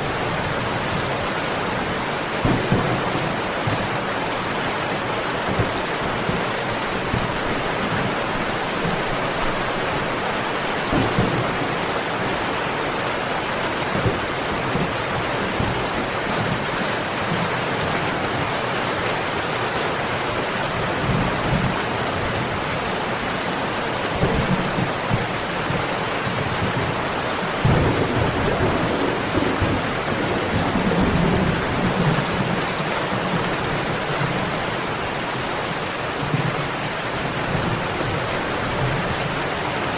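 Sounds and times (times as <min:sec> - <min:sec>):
heavy rain: 0:00.0 - 0:39.9
thunder rumbling: 0:02.4 - 0:12.5, 0:24.1 - 0:33.8.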